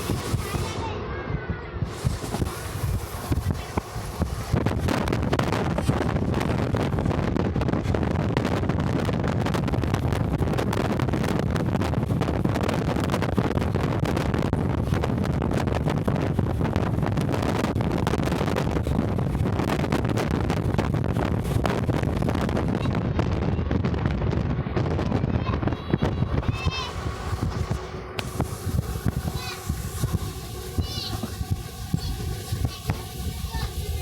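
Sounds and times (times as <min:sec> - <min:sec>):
moving train running noise: 0:00.0 - 0:12.2, 0:25.4 - 0:34.0
wind buffeting microphone: 0:00.0 - 0:34.0.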